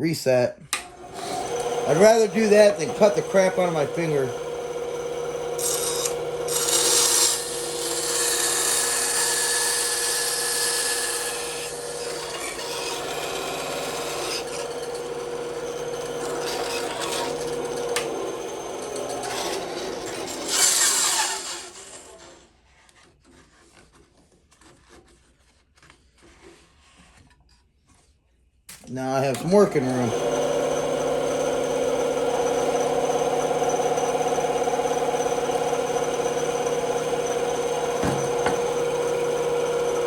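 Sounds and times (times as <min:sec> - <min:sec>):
bandsaw cutting wood: 0:00.7 - 0:22.5, 0:28.9 - 0:40.0
machine hum: 0:00.8 - 0:07.9, 0:29.1 - 0:40.0.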